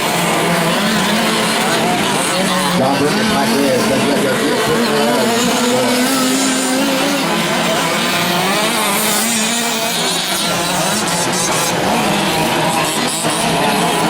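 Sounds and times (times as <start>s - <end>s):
small two-stroke engines revving: 0.0s - 14.0s.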